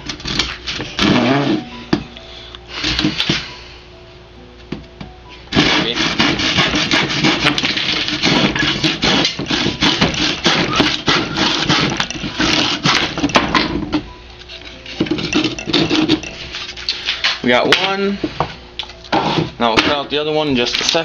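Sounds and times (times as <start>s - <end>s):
saw cutting through wood: 5.5s - 13.1s.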